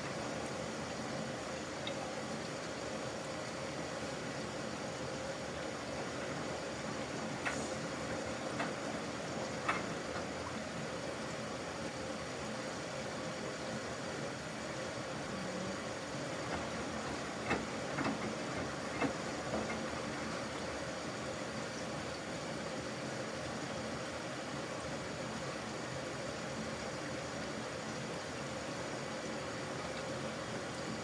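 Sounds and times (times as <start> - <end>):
washing machine hiss and hum: 0.0 - 31.0
light clicks and knocks in machine: 5.7 - 10.6, 16.2 - 20.8.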